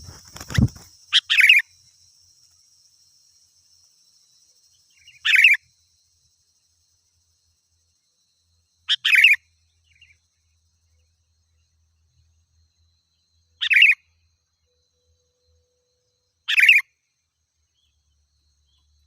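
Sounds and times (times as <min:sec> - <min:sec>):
bird calling bright phrases: 0:13.6 - 0:14.0.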